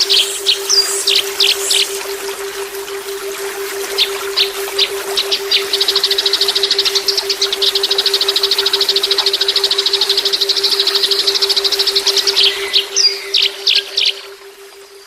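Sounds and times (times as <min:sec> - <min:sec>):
bird chirps and rapid trill: 0:00.0 - 0:02.0
steady low hum: 0:00.0 - 0:15.0.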